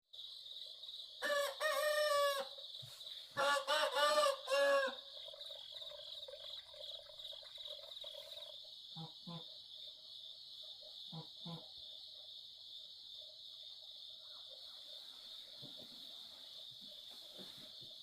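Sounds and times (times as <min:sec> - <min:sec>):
rooster crowing: 0:01.2 - 0:02.6, 0:03.4 - 0:05.0.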